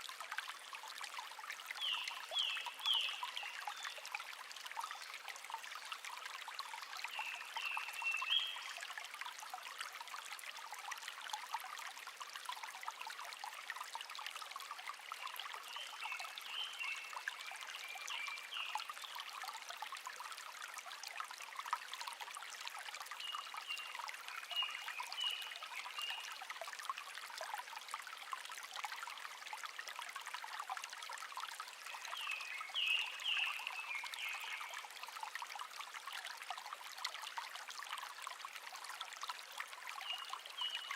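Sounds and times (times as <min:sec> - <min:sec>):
stream babbling: 0:00.0 - 0:40.9
songbird singing: 0:07.2 - 0:08.7, 0:31.9 - 0:34.8.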